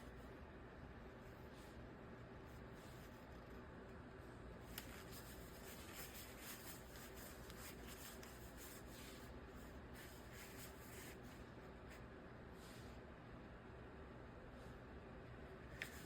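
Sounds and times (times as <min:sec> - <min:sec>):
faint scratchy rustling: 0:04.6 - 0:12.0.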